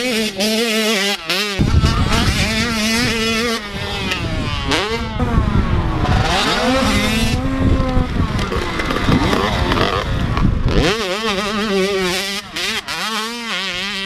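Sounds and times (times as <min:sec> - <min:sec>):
motocross bikes revving: 0:00.0 - 0:14.0
wind buffeting microphone: 0:01.6 - 0:11.6.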